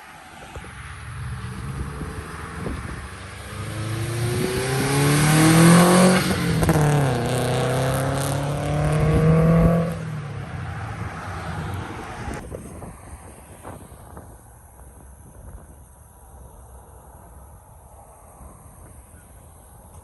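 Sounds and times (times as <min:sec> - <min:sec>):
car engine revving: 0:00.5 - 0:12.4.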